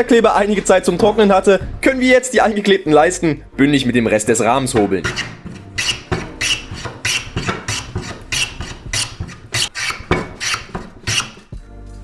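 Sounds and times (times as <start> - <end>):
hand plane shaving wood: 5.0 - 11.6.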